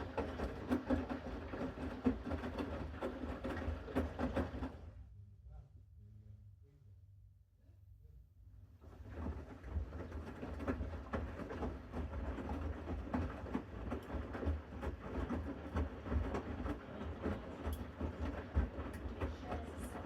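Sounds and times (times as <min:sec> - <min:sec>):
wet laundry tumbling with knocks: 0:00.0 - 0:04.9, 0:08.8 - 0:20.0
washing machine motor and drum rumble: 0:00.0 - 0:05.0, 0:08.8 - 0:20.0.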